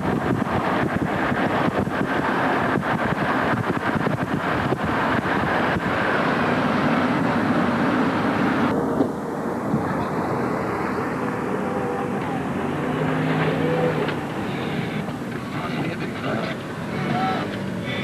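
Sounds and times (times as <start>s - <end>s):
road and wind noise from moving car: 0.0s - 18.0s.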